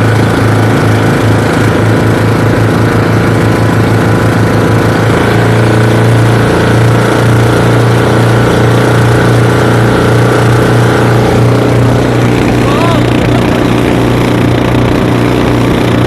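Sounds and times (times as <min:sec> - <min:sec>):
boat engines running: 0:00.0 - 0:16.0.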